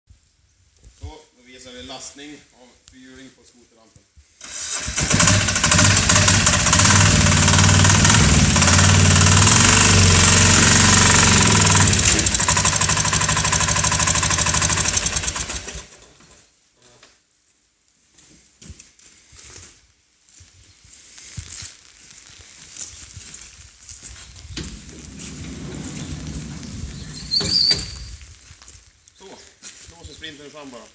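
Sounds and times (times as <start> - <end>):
atv engine running under load: 4.5 - 16.0.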